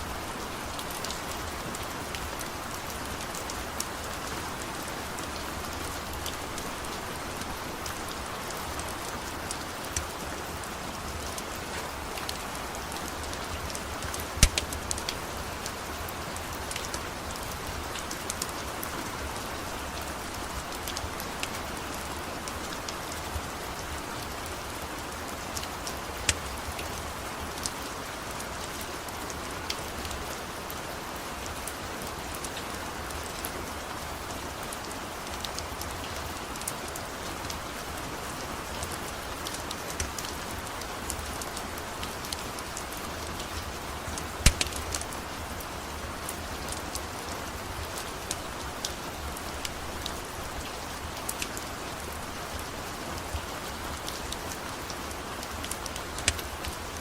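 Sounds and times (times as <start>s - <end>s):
steady rain falling: 0.0s - 57.0s
wood fire crackling: 0.3s - 18.6s, 44.1s - 45.7s, 55.4s - 57.0s.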